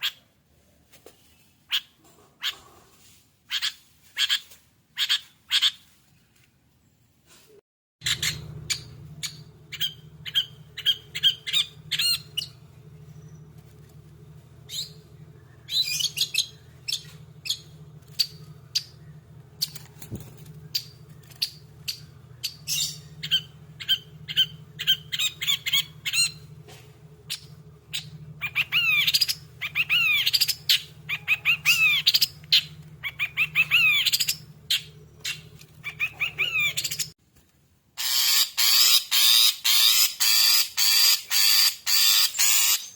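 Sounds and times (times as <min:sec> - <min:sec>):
bird singing harsh notes: 0:08.0 - 0:37.1
low hum: 0:08.0 - 0:37.1.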